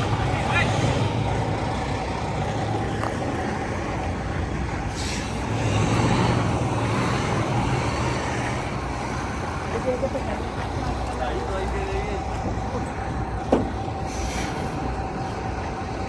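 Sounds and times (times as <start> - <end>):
truck diesel engine running: 0.0 - 16.0
brief air hiss: 14.1 - 14.6.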